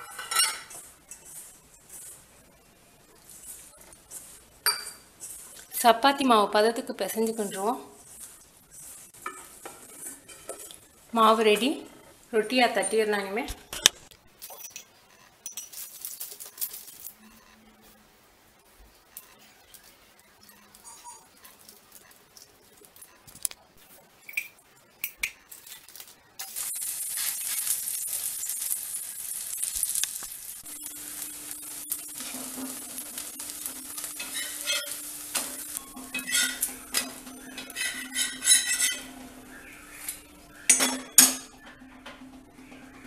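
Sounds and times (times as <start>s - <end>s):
steel spatula scraping and clinking: 0.0s - 1.4s, 26.4s - 41.6s
flatbread sizzling on griddle: 0.0s - 5.8s, 7.2s - 11.0s, 18.9s - 41.5s.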